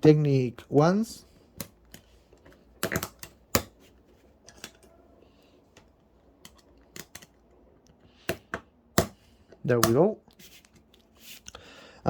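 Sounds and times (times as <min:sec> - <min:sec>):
plastic pieces snapping together: 0:02.8 - 0:03.8, 0:05.8 - 0:07.4, 0:09.8 - 0:10.0.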